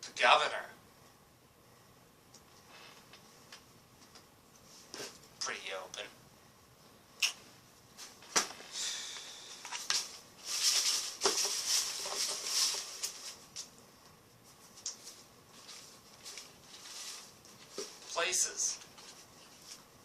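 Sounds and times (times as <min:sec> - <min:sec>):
handling rustling: 0:09.7 - 0:13.6, 0:14.5 - 0:18.2.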